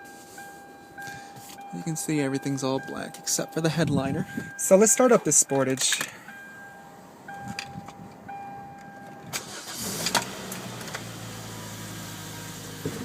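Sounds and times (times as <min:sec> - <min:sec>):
car warning chime: 0:00.0 - 0:09.8
car engine starting and idling: 0:00.9 - 0:13.0.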